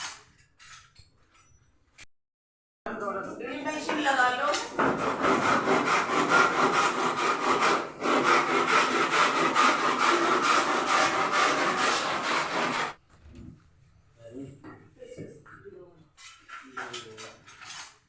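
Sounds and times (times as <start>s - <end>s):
saw cutting through wood: 4.7s - 13.0s.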